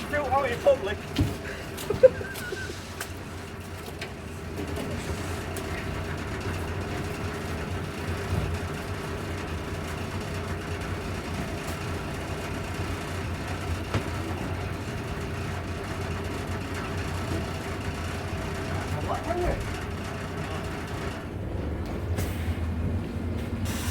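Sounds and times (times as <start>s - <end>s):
diesel engine humming: 0.0s - 23.9s.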